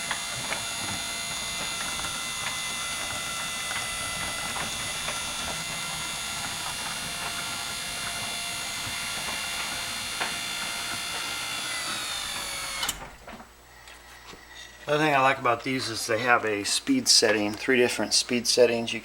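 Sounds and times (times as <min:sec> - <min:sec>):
garage door opener whining: 0:00.0 - 0:13.6.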